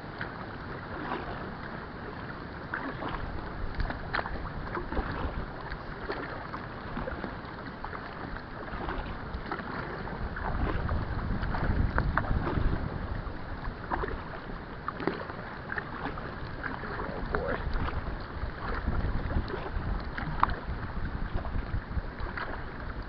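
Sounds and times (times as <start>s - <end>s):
paddle splashing in water: 0.0s - 23.0s
wind buffeting microphone: 3.0s - 7.3s, 8.1s - 14.7s, 15.6s - 23.0s.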